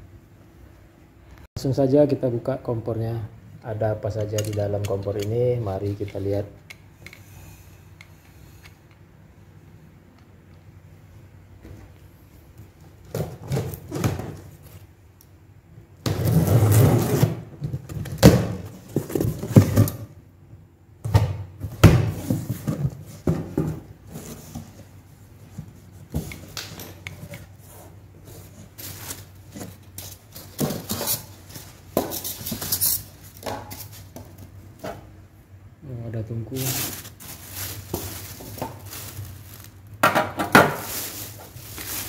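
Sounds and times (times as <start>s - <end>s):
cardboard rustling and scraping: 22.1s - 26.4s, 27.2s - 35.1s, 36.5s - 39.8s, 40.5s - 42.0s
knocks and clatter of parts: 28.9s - 35.1s, 40.0s - 40.9s.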